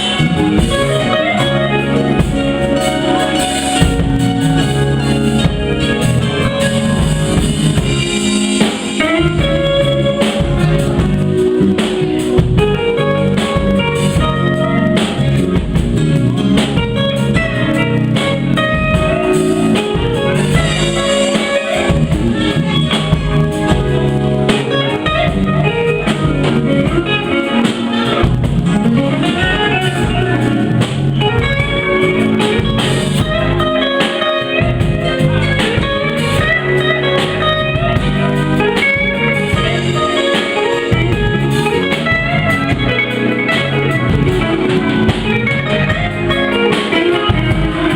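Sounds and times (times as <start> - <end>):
blues band playing: 0.0 - 47.9
lead guitar: 0.0 - 47.9.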